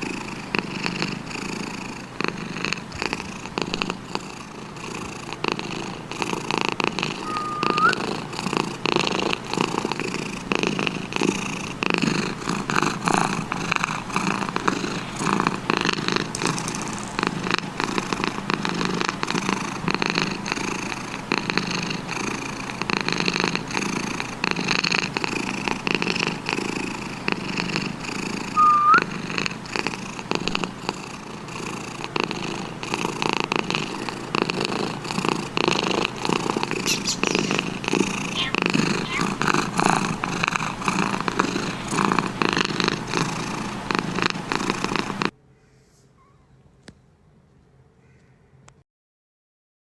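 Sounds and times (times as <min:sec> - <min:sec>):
cat purring: 0:00.0 - 0:45.3
thin rising chirps: 0:07.2 - 0:08.0, 0:36.9 - 0:37.7, 0:38.4 - 0:39.3.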